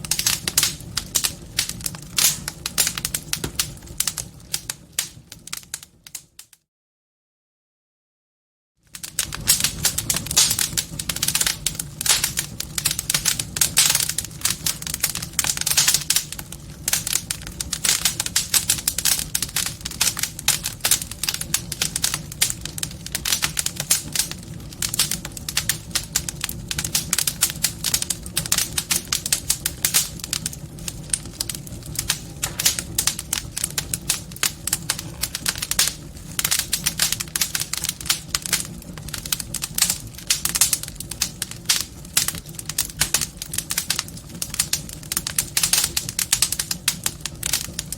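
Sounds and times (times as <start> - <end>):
wood fire crackling: 0.0 - 6.6, 8.8 - 47.9.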